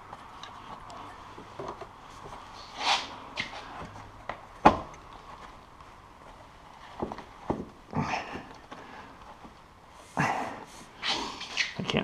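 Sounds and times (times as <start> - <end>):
exhaust can clicks and scuffs: 0.0 - 7.8.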